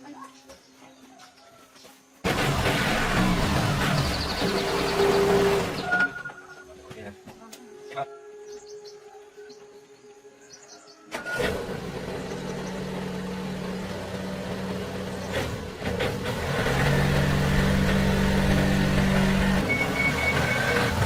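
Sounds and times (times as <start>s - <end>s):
small motorcycle engine running: 2.2s - 6.3s, 11.3s - 21.0s.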